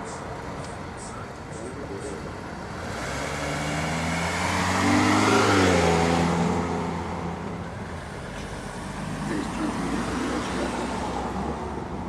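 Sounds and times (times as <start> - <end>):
vehicle driving past: 2.8 - 7.6.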